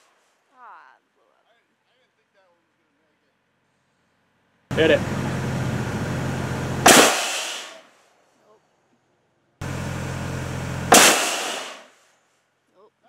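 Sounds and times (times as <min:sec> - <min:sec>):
low mechanical hum: 0:04.7 - 0:07.0, 0:09.6 - 0:11.6
air cannon blast: 0:04.7 - 0:07.8, 0:09.6 - 0:11.9.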